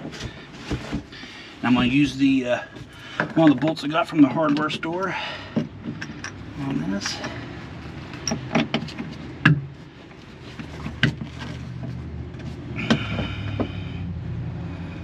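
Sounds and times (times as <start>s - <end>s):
metal clicks and knocks: 5.6s - 7.4s.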